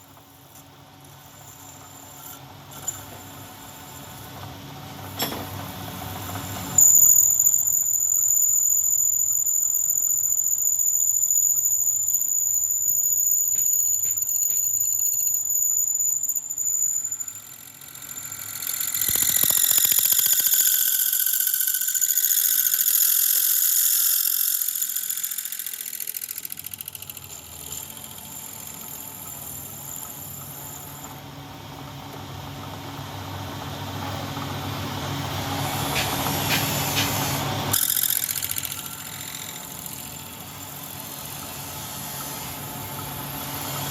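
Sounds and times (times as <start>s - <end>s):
hiss of metal cutting: 35.7s - 37.6s.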